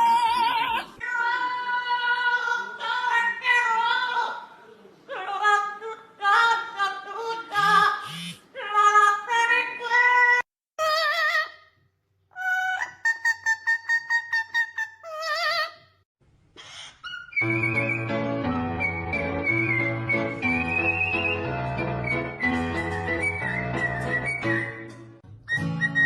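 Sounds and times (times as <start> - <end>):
parrot singing: 12.3 - 15.9.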